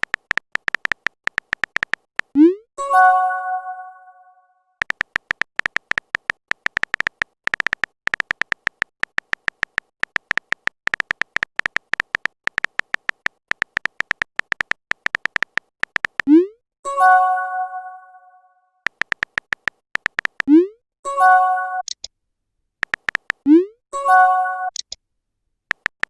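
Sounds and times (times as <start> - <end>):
phone keyboard typing clicks: 0.0 - 2.5, 4.8 - 16.4, 18.8 - 20.6, 21.8 - 22.1, 22.8 - 23.6, 24.7 - 25.0, 25.7 - 26.0.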